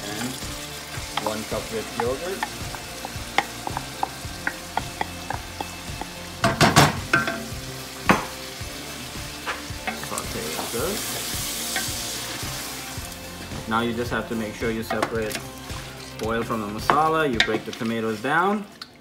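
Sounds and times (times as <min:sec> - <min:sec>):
food sizzling in hot oil: 0:00.0 - 0:19.0
wooden spoon knocking against pot: 0:02.0 - 0:07.4.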